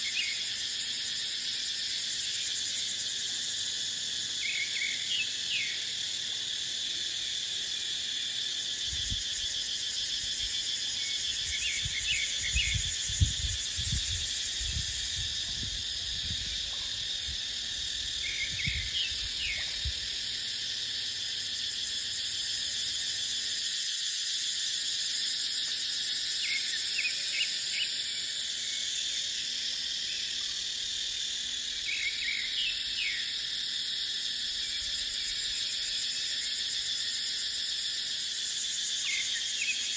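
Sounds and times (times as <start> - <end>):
cicadas droning: 0.0 - 39.9
wind buffeting microphone: 11.8 - 17.4, 18.4 - 20.0.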